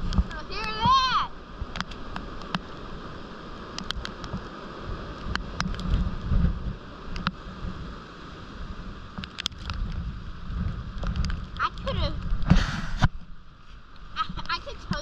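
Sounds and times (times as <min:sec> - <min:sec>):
hail pellets ticking: 0:00.0 - 0:02.7, 0:11.0 - 0:13.2, 0:13.9 - 0:15.0
heavy rain downpour: 0:00.0 - 0:15.0
wind buffeting microphone: 0:00.0 - 0:15.0.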